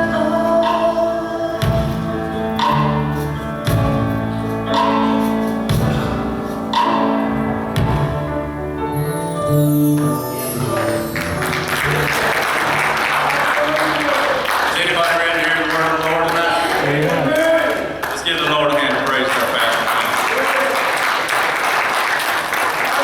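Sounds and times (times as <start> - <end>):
gospel singing with band: 0.0 - 4.2
bass line: 0.0 - 14.1
sharp drum beat: 1.6 - 8.4
audience applause: 10.2 - 23.0.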